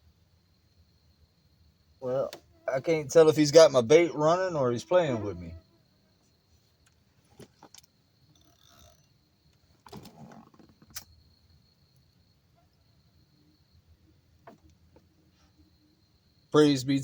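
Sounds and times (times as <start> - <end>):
faint clicks: 6.8 - 11.2.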